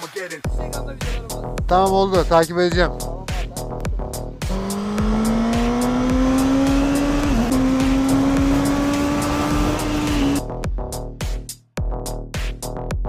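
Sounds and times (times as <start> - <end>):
motorcycle engine revving high: 4.4 - 10.4.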